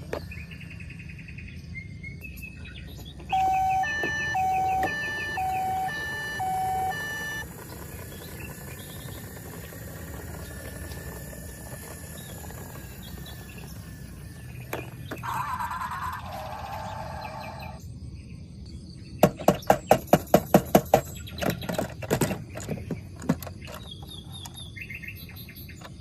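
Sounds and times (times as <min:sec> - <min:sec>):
clicks: 0:03.0 - 0:15.3
toy electronic siren: 0:03.2 - 0:17.8
brief buzzing: 0:03.3 - 0:15.3.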